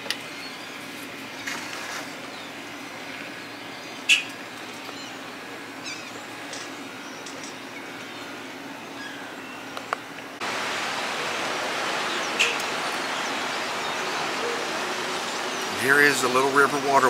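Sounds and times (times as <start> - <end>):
outdoor background noise: 0.0 - 17.0
birds calling: 0.2 - 17.0
loud high bird call: 11.1 - 17.0.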